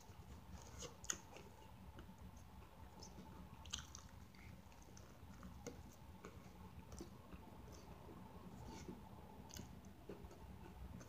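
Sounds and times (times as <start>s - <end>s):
faint chewing: 0.0s - 11.0s.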